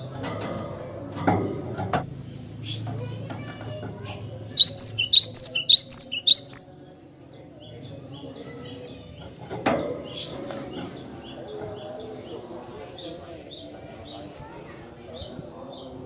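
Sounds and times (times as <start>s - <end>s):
bird singing sharp notes: 4.6s - 6.7s.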